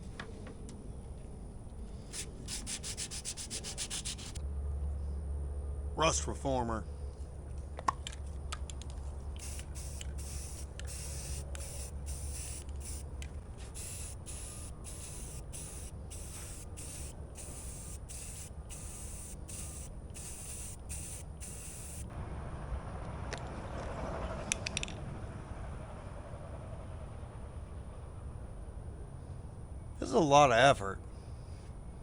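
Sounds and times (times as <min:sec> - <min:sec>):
aerosol can spraying bursts: 0:02.1 - 0:04.4, 0:09.4 - 0:22.1.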